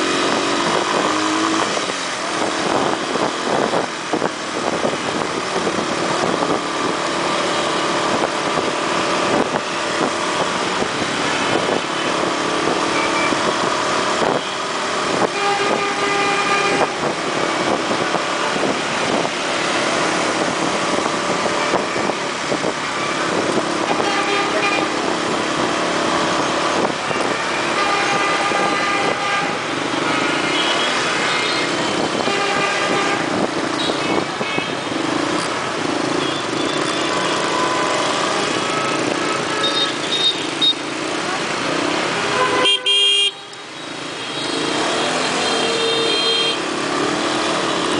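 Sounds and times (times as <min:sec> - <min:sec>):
motorbike and car engines: 0:00.0 - 0:47.9
horn toots: 0:27.1 - 0:34.9, 0:42.1 - 0:43.6, 0:44.2 - 0:46.7.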